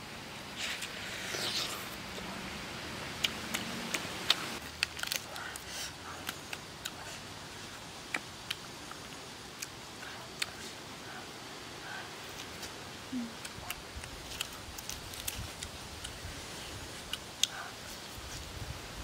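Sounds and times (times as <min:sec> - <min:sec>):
biting and chewing food: 0:03.2 - 0:10.8, 0:13.4 - 0:16.2.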